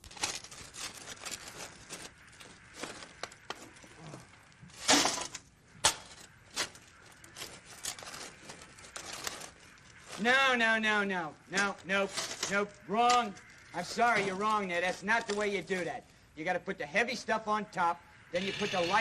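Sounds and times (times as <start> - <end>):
hard objects clattering and crashing: 0.1 - 10.3, 18.4 - 19.0.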